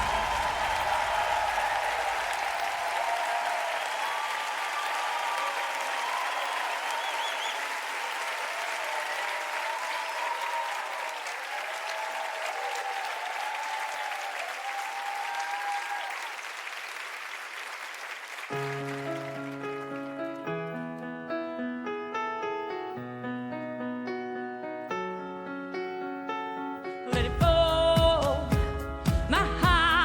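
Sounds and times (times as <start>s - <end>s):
piano chords: 0.0s - 2.7s, 18.5s - 30.0s
audience applauding and cheering: 0.0s - 20.6s.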